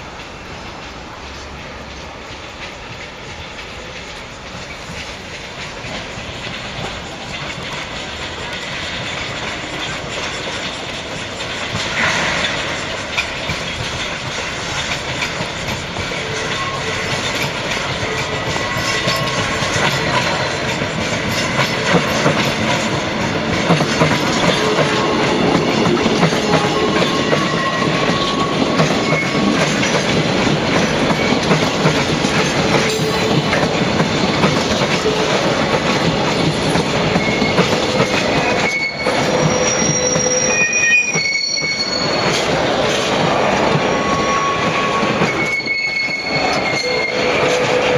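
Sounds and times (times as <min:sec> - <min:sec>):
train wheels clattering on rails: 0:00.0 - 0:47.9
wheel squeals: 0:15.2 - 0:20.5, 0:24.0 - 0:30.1, 0:34.9 - 0:47.9.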